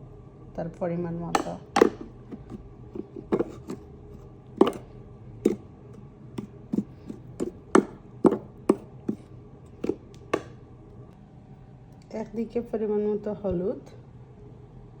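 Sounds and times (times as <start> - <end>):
utensil tapping a container: 1.4 - 3.8, 4.6 - 4.8, 5.4 - 5.6, 6.4 - 10.6.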